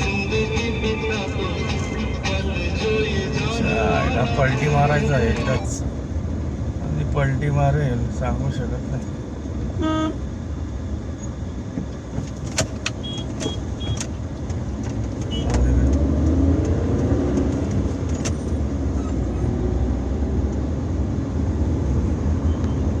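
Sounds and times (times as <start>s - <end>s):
truck engine labouring: 0.0s - 22.2s
sharp clicks and knocks: 11.7s - 18.5s.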